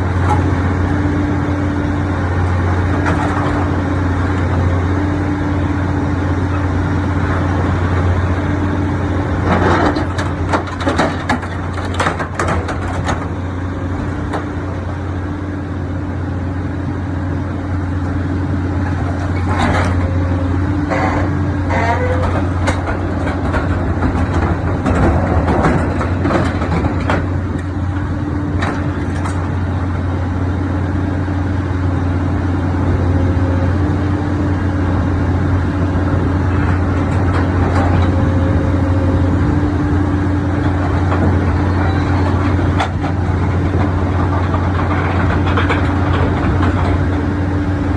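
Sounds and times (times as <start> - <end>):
shear machine low hum: 12.5 - 47.9
metal cracking and creaking: 20.8 - 27.2.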